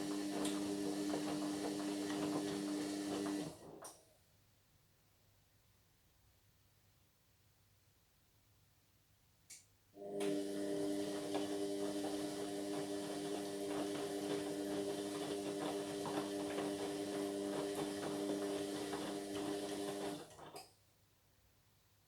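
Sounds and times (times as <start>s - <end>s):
laundry and water tumbling: 0.0s - 3.8s, 10.8s - 20.6s
washing machine motor humming: 0.0s - 3.8s, 10.0s - 20.5s.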